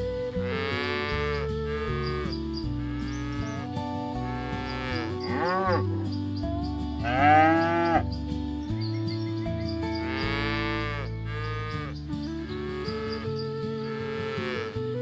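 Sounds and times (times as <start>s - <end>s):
background music: 0.0s - 15.0s
cattle mooing: 0.5s - 6.0s, 7.0s - 8.0s, 10.1s - 12.0s, 12.7s - 14.8s.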